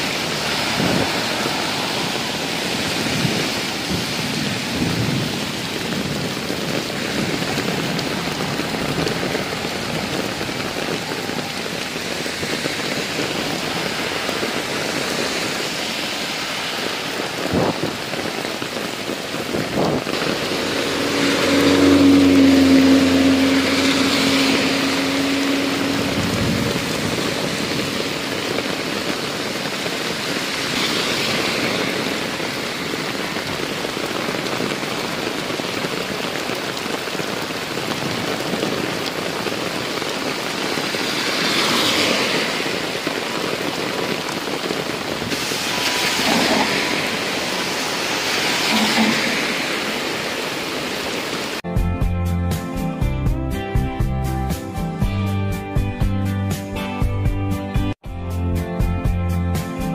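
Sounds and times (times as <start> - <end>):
passing vehicle engine: 0.0 - 5.4, 20.0 - 28.3, 41.0 - 42.8, 45.4 - 50.4
heavy rain on road: 0.0 - 51.7
tyres hissing on wet road: 0.0 - 51.7.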